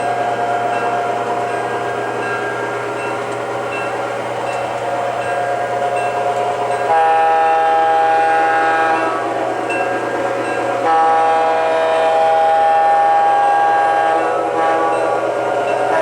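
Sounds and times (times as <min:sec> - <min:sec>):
model train running noise: 0:00.0 - 0:16.0
model train horn: 0:06.9 - 0:09.4, 0:10.8 - 0:16.0.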